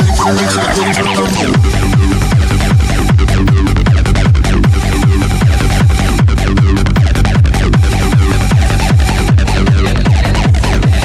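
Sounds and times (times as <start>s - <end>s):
electronic music mix: 0.0s - 11.0s
techno kick drum: 0.0s - 11.0s.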